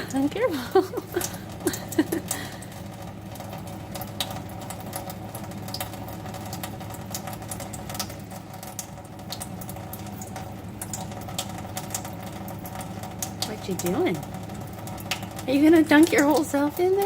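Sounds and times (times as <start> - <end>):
steady low hum: 0.0 - 17.0
water splashes and drips: 0.0 - 17.0.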